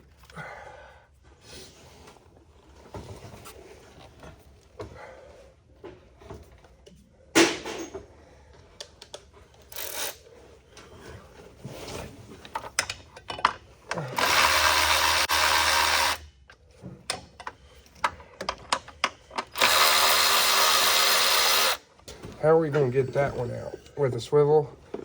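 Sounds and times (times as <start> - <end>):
hand tools clicking and knocking: 12.4 - 22.9
handheld power tool running: 14.0 - 16.3, 19.5 - 21.9.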